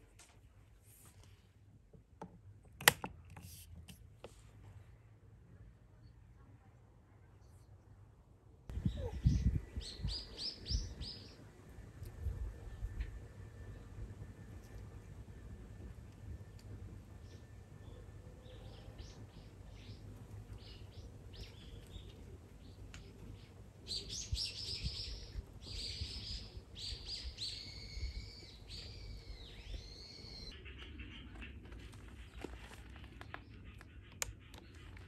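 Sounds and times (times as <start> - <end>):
birdsong with whistled notes: 8.7 - 11.5, 17.2 - 31.6.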